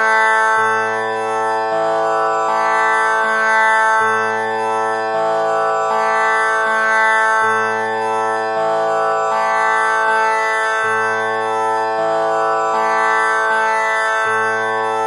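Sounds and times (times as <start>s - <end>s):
tanpura drone plucked strings: 0.0s - 15.0s.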